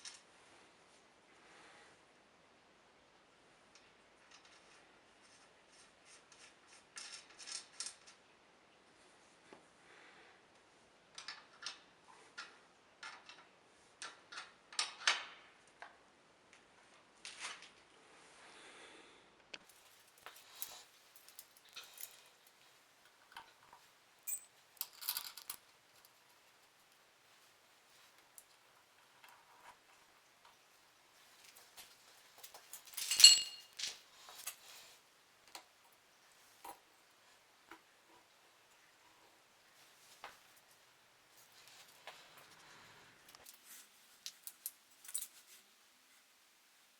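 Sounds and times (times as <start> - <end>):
metallic clink: 24.2 - 25.6, 32.8 - 34.6.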